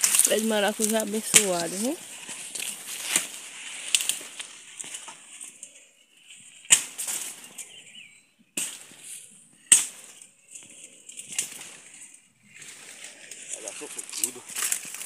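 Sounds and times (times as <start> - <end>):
sharp cracks: 0.0 - 5.2, 6.6 - 7.7, 8.6 - 15.0
quiet rustling: 10.1 - 15.0.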